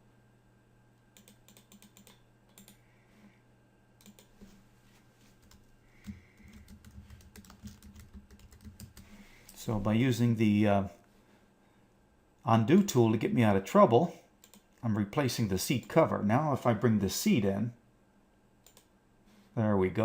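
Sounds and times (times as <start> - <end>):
low steady hum: 0.0 - 20.0
typing on computer keyboard: 1.2 - 2.8, 4.0 - 4.3, 5.4 - 9.1.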